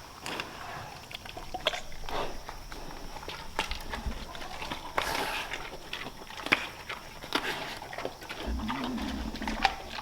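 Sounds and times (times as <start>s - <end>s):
pigs crunching apples: 0.0s - 10.0s
pig grunting: 7.4s - 10.0s.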